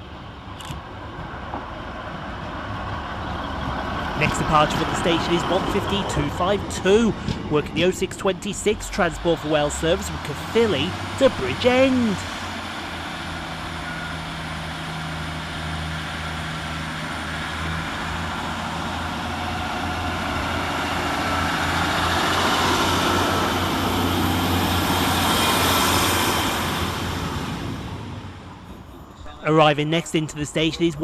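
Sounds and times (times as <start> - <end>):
diesel engine drone: 0.0 - 31.0
train wheel and rail noise: 0.0 - 31.0.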